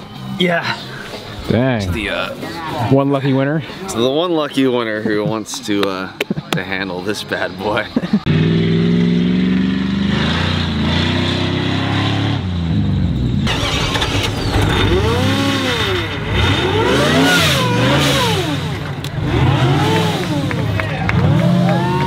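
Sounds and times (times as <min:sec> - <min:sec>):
vehicle engine revving: 0:08.2 - 0:22.0.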